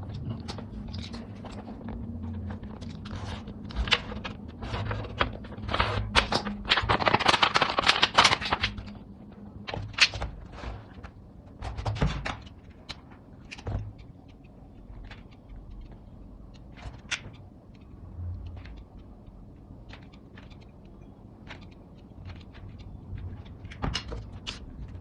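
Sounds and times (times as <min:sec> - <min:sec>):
crinkling metal scrape: 0:00.2 - 0:09.0.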